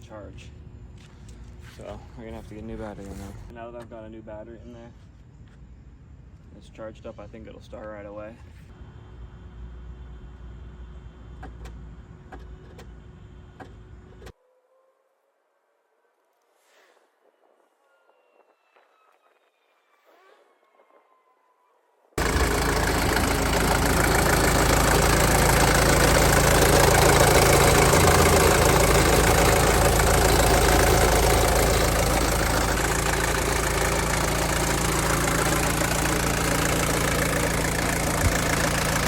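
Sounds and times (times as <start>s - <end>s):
car engine idling: 22.2s - 39.0s.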